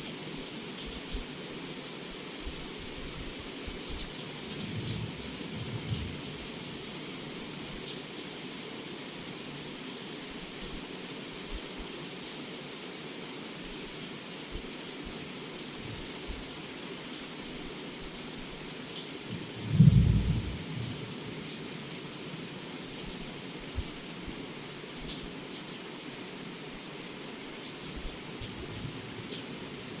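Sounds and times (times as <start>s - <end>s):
heavy rain pouring: 0.1s - 30.0s
low rumble of thunder: 4.4s - 6.7s, 19.3s - 21.5s.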